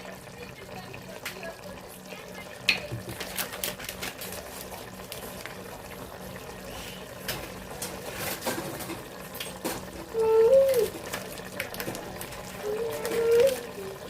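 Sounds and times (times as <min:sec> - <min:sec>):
liquid boiling in a pot: 0:00.0 - 0:14.0.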